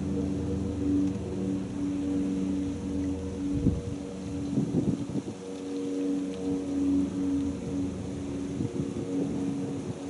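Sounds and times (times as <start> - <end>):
engine humming steadily: 0.0 - 10.0.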